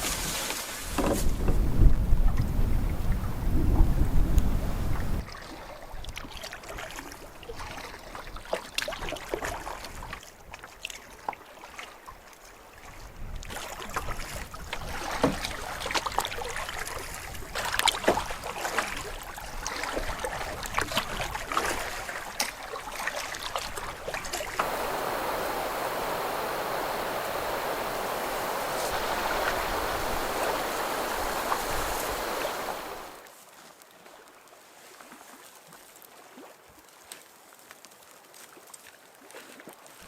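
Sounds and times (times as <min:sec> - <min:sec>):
paddle splashing water: 0:13.6 - 0:36.5.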